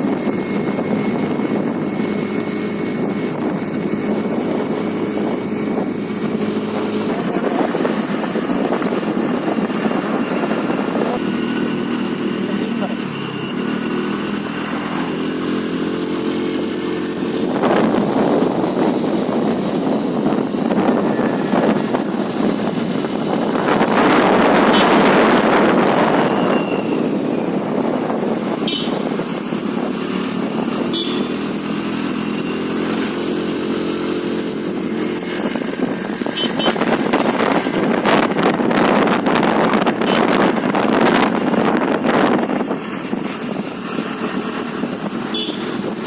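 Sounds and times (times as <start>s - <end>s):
rushing swells: 0.0s - 46.0s
scooter engine running: 0.0s - 46.0s.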